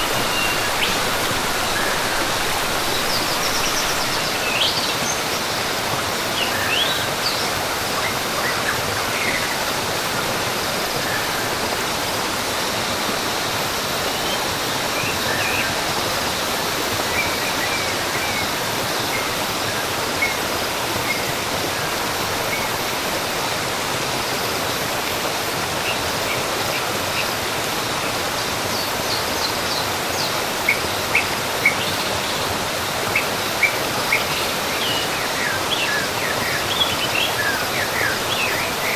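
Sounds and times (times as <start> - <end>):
bird chirps: 0.0 - 5.0
waterfall rushing: 0.0 - 38.9.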